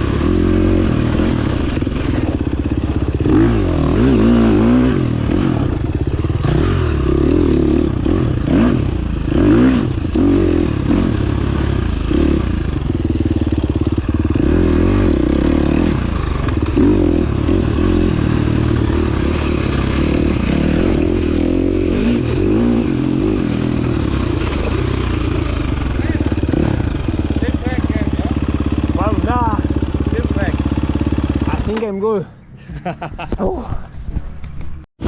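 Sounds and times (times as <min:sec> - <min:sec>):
dirt bike engine: 0:00.0 - 0:34.8
bike rattling over rough ground: 0:15.7 - 0:21.3.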